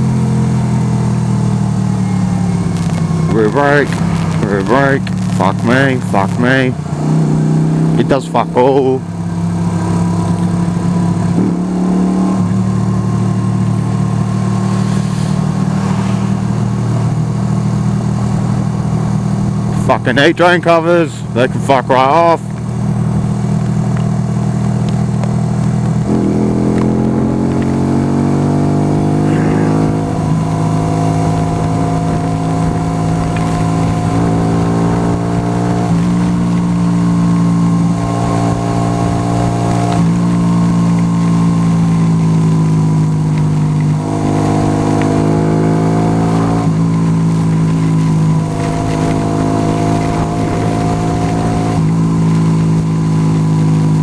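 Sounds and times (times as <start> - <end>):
motorcycle engine accelerating: 0.0 - 20.1, 22.4 - 54.0
wind noise rumble: 22.6 - 37.0, 43.4 - 53.0.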